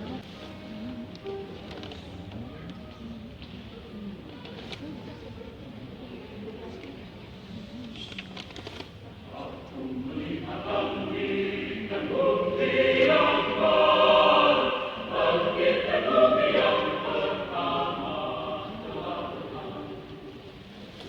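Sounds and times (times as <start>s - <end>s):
mixed choir singing: 9.3s - 21.0s.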